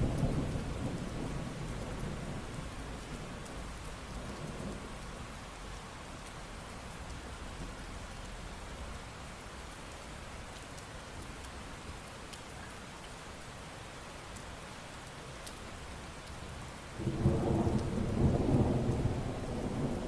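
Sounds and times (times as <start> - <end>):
steady rain: 0.0 - 20.0
thunder rumble: 17.0 - 20.0.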